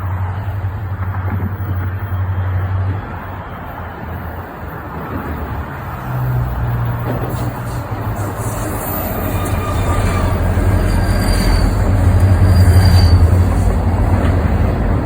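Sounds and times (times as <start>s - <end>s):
locomotive engine drone: 0.0s - 15.0s
faint high squeals: 7.3s - 13.7s.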